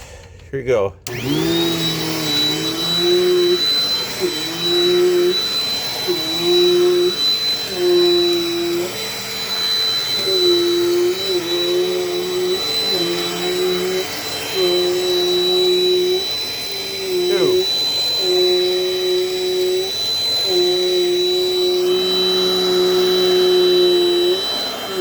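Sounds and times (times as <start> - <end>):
vacuum cleaner motor whine: 1.0 - 25.0.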